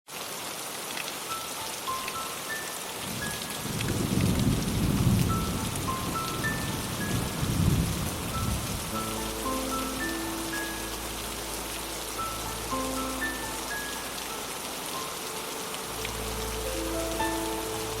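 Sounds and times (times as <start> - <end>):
steady rain: 0.1 - 18.0
thunder rumbling: 3.6 - 9.4.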